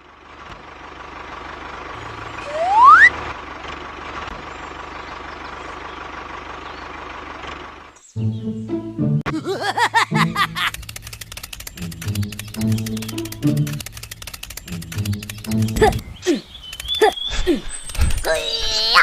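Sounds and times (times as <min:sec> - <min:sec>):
whistle-like rising tone: 0:02.4 - 0:03.2
small motor running: 0:10.5 - 0:18.4.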